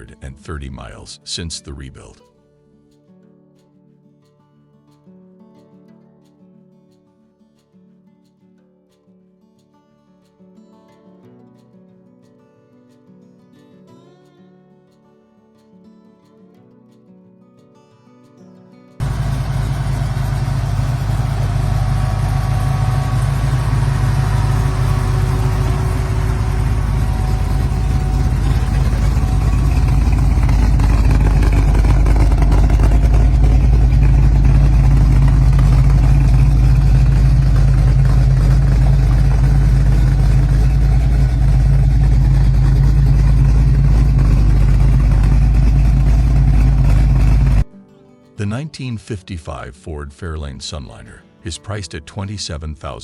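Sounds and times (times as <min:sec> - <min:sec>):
car engine rumbling: 0:19.0 - 0:47.6.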